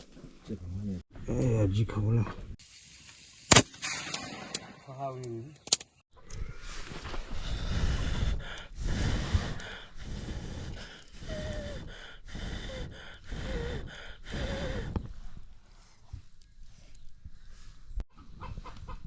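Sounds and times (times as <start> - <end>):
short puffs of breath: 7.3 - 16.3.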